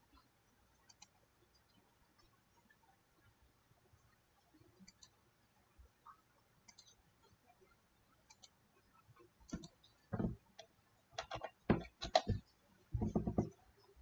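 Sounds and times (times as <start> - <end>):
mouse and keyboard clicking: 0.8 - 1.2, 6.7 - 7.0, 8.3 - 8.6, 9.5 - 9.8, 10.6 - 12.4.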